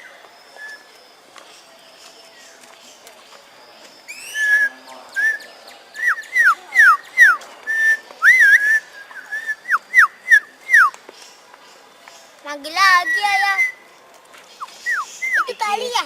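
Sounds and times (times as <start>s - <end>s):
bird whistling: 0.0s - 0.9s, 3.8s - 11.0s, 12.9s - 13.8s, 14.6s - 15.8s.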